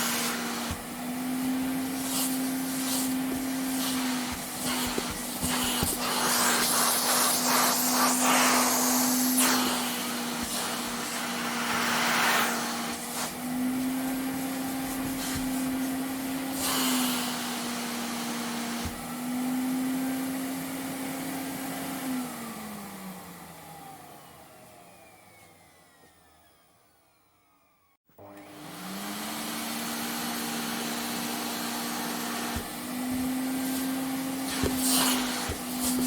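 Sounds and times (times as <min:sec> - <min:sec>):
rushing suction air: 0:00.0 - 0:17.8, 0:33.1 - 0:36.0
vacuum cleaner motor hum: 0:00.0 - 0:36.0.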